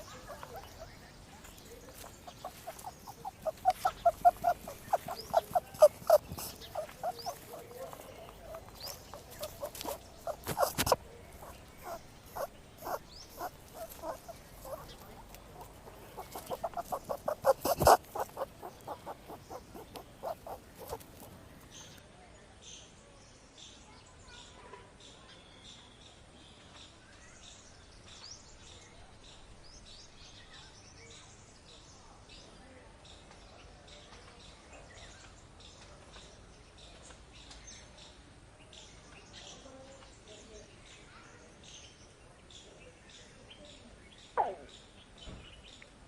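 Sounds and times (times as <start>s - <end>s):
animal chattering calls: 0.0s - 22.0s.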